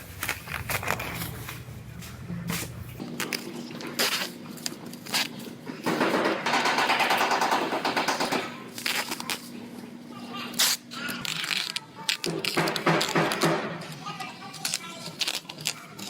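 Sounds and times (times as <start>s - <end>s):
faint hum: 0.0s - 12.5s
tool crackling impacts: 11.6s - 15.8s.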